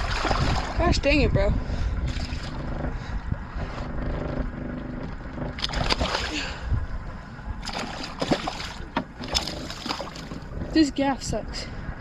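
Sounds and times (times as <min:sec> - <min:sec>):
water splashing: 0:00.0 - 0:01.3, 0:05.0 - 0:06.7, 0:07.6 - 0:10.8
boat motor running low: 0:00.0 - 0:11.5.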